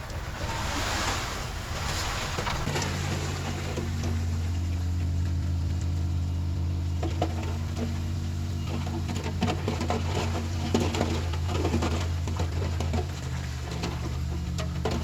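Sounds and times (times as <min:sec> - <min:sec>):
bulldozer diesel engine droning: 0:00.0 - 0:15.0.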